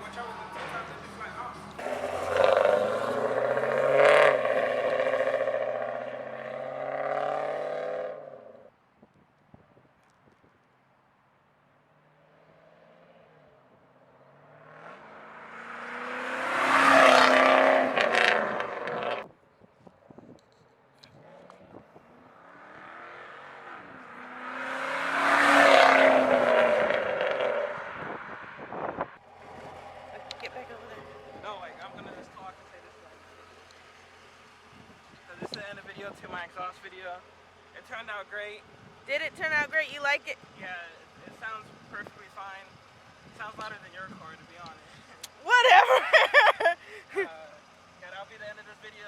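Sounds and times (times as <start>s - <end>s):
car engine revving: 0.0s - 8.7s, 12.0s - 19.3s, 21.0s - 41.8s.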